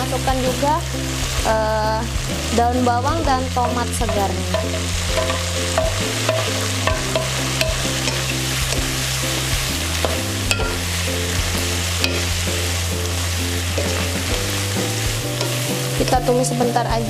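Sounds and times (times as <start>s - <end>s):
frying sizzle in a wok: 0.0s - 17.0s
soft background music: 0.0s - 17.0s
spatula knocking against pan: 3.6s - 8.2s
wooden spatula stirring food: 3.6s - 16.3s.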